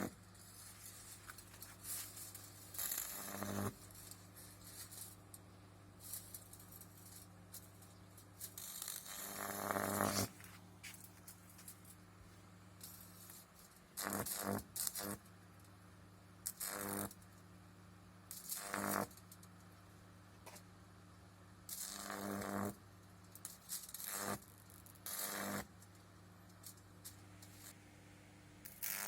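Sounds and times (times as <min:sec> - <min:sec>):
high-voltage arcing buzz: 0:00.0 - 0:10.4, 0:12.8 - 0:15.3, 0:16.4 - 0:17.4, 0:18.3 - 0:19.5, 0:21.6 - 0:27.8, 0:28.6 - 0:29.0.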